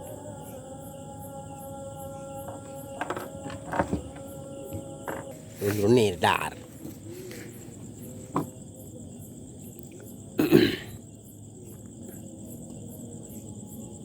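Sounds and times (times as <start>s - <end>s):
crickets chirping: 0.0s - 14.0s
person coughing: 10.4s - 11.0s.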